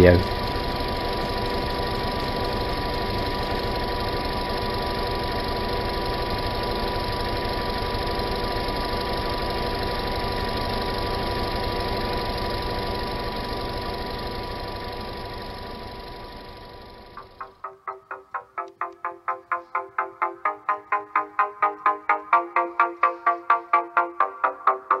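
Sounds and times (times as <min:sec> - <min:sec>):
car engine idling: 0:00.0 - 0:17.6
constant whine: 0:00.0 - 0:25.0.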